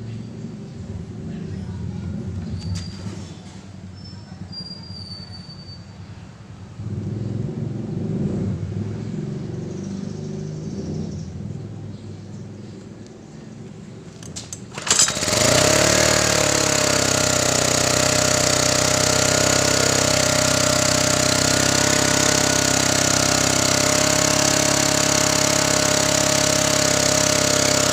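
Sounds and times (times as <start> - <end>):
generator engine starting: 14.1 - 27.9.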